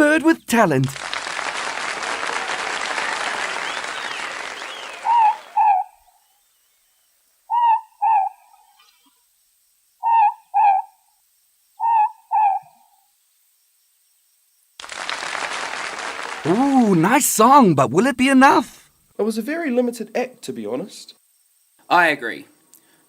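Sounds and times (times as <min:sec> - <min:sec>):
owl hooting two notes: 0:04.9 - 0:05.9, 0:11.8 - 0:12.7.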